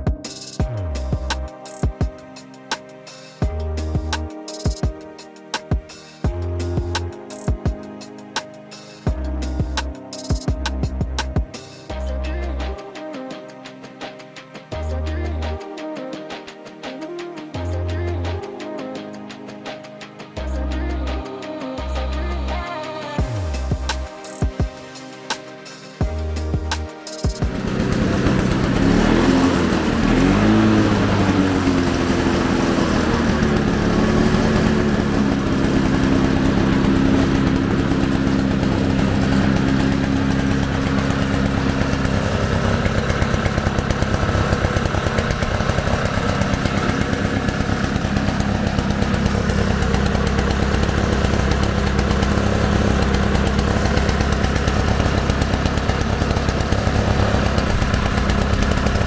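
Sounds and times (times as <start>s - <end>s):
push mower two-stroke engine: 26.1s - 59.0s.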